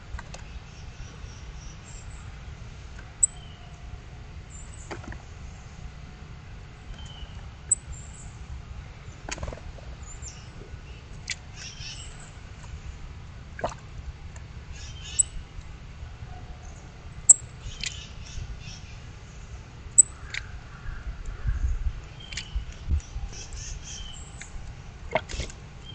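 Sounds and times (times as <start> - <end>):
steady low rumble: 0.0 - 25.9
small birds chirping: 3.0 - 3.8, 6.7 - 13.0, 14.7 - 15.7, 16.6 - 25.9.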